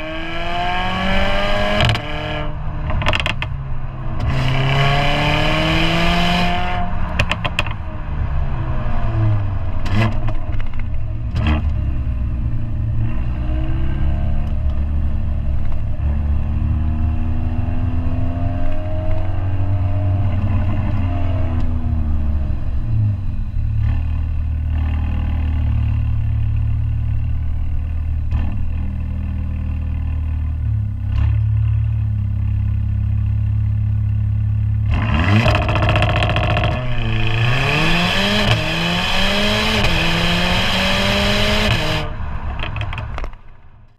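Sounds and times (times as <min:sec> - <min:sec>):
car engine accelerating: 0:00.0 - 0:43.9.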